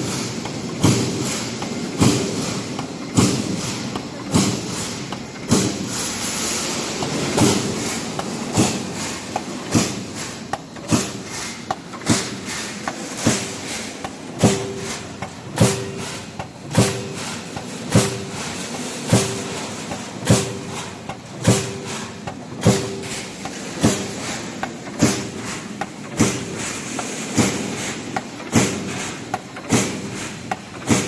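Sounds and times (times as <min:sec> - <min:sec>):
roll forming machine running: 0:00.0 - 0:31.0
punch press striking with metallic ring: 0:14.4 - 0:18.4, 0:19.1 - 0:19.6, 0:20.2 - 0:20.8, 0:21.4 - 0:21.9, 0:22.6 - 0:24.1.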